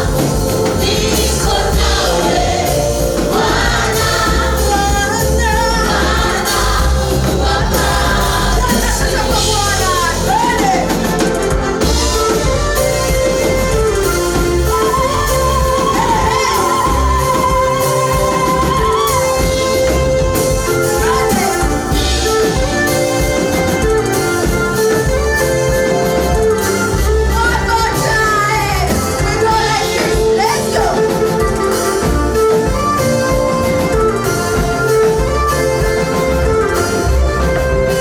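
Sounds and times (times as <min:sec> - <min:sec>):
people singing: 0:00.0 - 0:12.5, 0:13.7 - 0:22.7, 0:27.4 - 0:31.2
band playing: 0:00.0 - 0:38.0
steady drum beat: 0:00.0 - 0:38.0.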